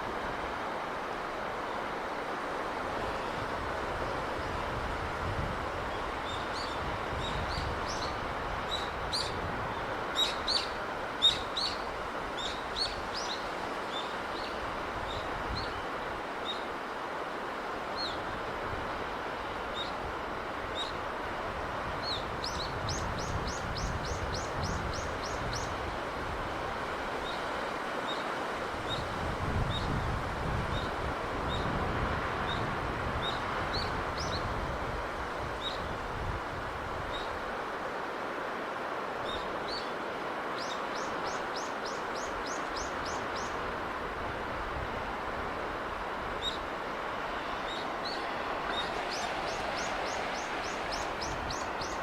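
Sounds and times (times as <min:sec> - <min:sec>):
sea breeze and surf: 0:00.0 - 0:52.0
small birds chirping: 0:47.6 - 0:52.0.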